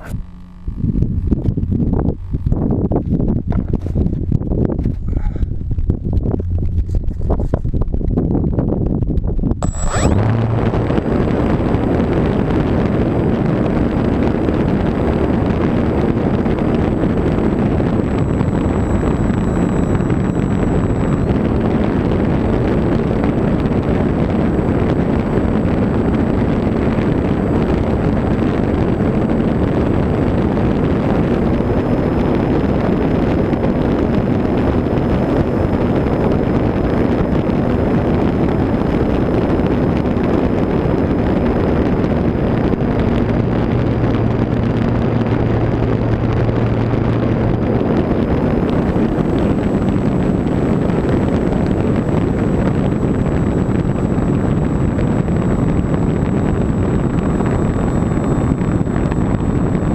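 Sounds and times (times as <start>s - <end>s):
faint high whine: 0.0s - 3.7s, 9.6s - 59.9s
wind rushing on microphone: 0.0s - 59.9s
model plane motor and propeller: 9.6s - 59.9s.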